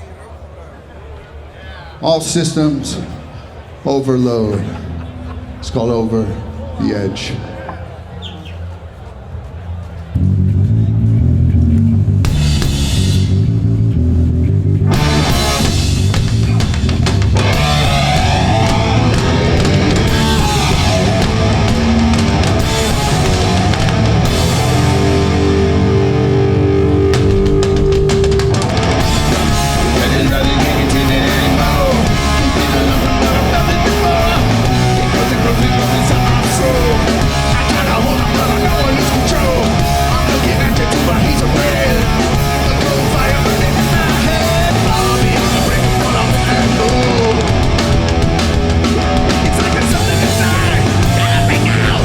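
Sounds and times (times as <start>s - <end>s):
punk band playing live: 9.4s - 52.0s.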